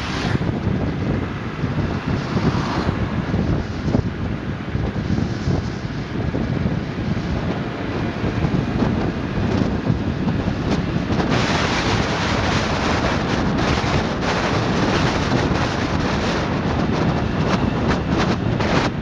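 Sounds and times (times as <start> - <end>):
river rushing: 0.0 - 0.5
wind buffeting microphone: 0.0 - 19.0.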